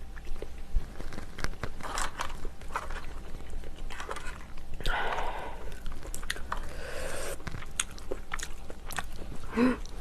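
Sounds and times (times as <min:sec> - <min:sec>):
close chewing and crunching: 0:00.0 - 0:10.0
throaty vocal sound: 0:04.8 - 0:05.8.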